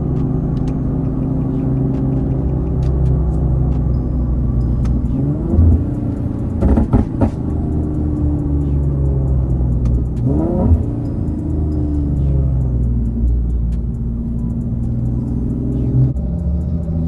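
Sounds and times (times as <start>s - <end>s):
car engine revving through loud exhaust: 4.8s - 17.0s.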